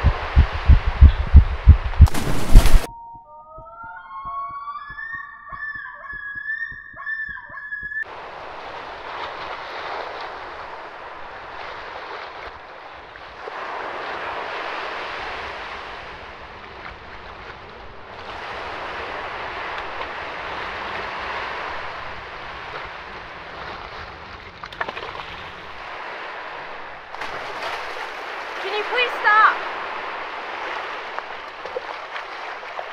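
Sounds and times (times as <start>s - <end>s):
wind and water rushing: 0.0s - 2.9s, 8.0s - 32.9s
low rumble: 0.0s - 3.1s.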